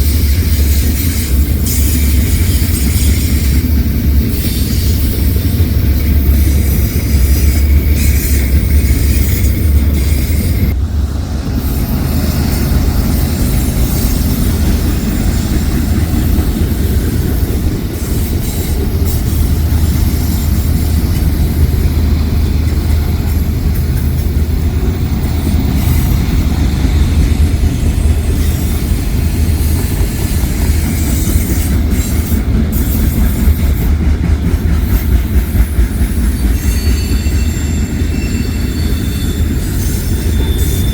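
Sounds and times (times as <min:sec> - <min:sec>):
metallic wheel squeal: 0:00.0 - 0:10.8, 0:36.2 - 0:40.9
freight train cars rumbling: 0:00.0 - 0:40.9.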